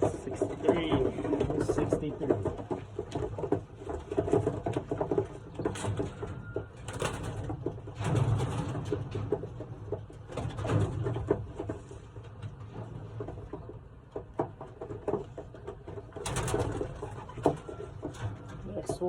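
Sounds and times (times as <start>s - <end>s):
pigeons cooing: 16.3s - 18.3s.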